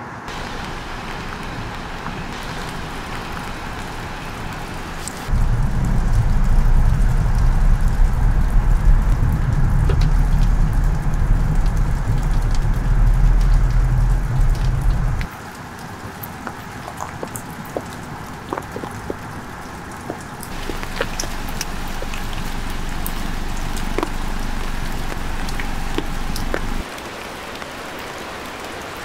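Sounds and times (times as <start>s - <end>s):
rain falling: 0.0s - 29.0s
loud low rumble: 0.3s - 15.3s, 20.5s - 26.8s.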